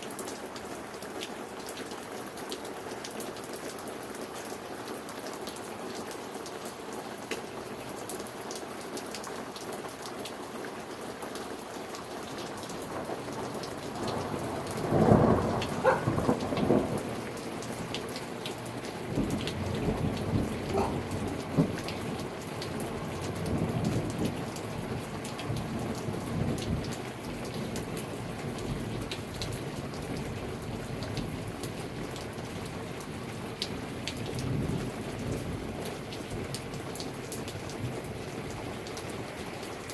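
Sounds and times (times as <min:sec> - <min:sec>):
rain pattering: 0:00.0 - 0:39.9
thunder rumbling: 0:12.9 - 0:26.9.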